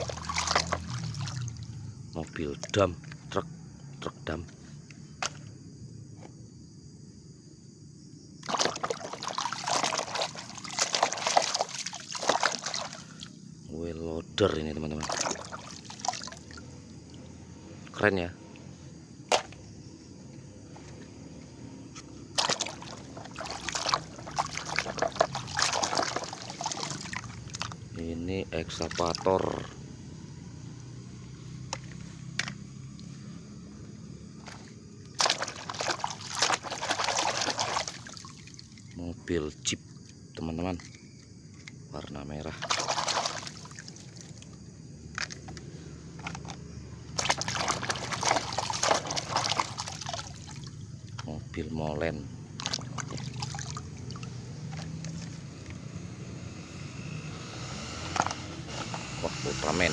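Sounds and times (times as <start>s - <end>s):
scrubbing toy truck by hand: 0.0s - 1.5s, 8.4s - 13.4s, 15.0s - 16.7s, 22.4s - 27.8s, 28.8s - 29.4s, 34.4s - 38.6s, 42.6s - 44.4s, 47.2s - 50.8s, 52.6s - 55.6s, 58.0s - 59.9s
water splashing and sloshing: 0.0s - 3.2s, 8.4s - 13.6s, 14.9s - 28.0s, 28.6s - 39.0s, 42.4s - 51.6s, 52.2s - 56.1s, 57.9s - 59.9s.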